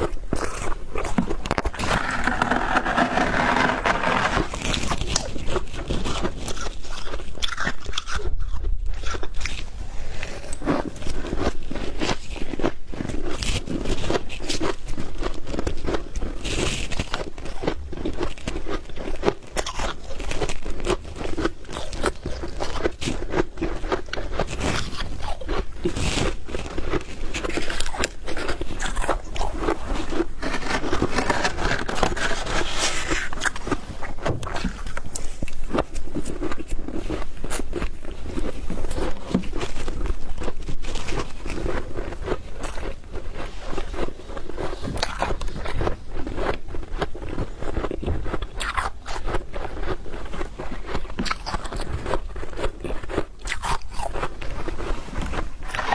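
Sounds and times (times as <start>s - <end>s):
frost being scraped: 1.1s - 6.8s, 26.0s - 37.8s.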